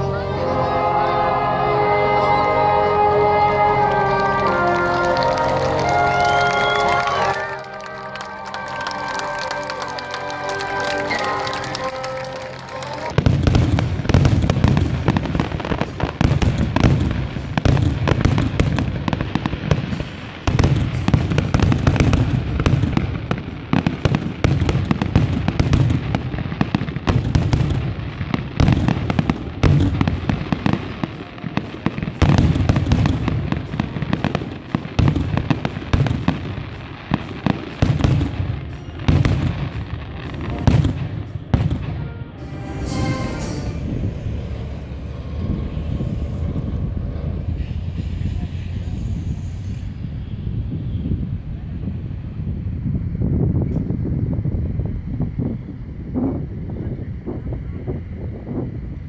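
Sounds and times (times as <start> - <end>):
deep fireworks booms: 3.4 - 59.0
fireworks sharp bangs: 3.8 - 51.4.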